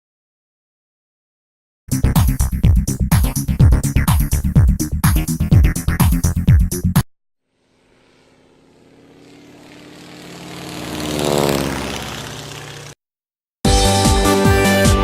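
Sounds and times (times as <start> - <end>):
engine droning past: 7.5 - 13.0.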